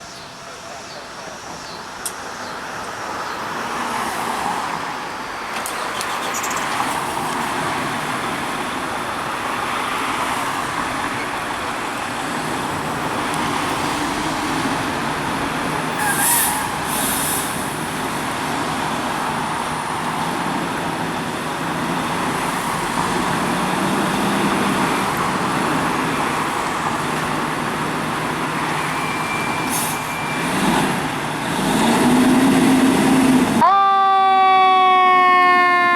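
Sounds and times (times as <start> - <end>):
street traffic: 0.0 - 35.9
short sharp hiss: 16.0 - 17.7.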